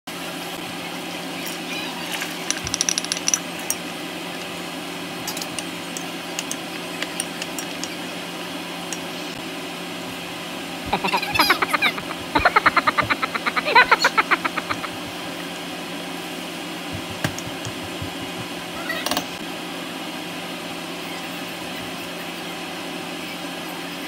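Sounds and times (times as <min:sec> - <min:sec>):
seasoning tapping from cup: 0:17.0 - 0:18.6
wooden spoon knocking pan: 0:17.0 - 0:18.6.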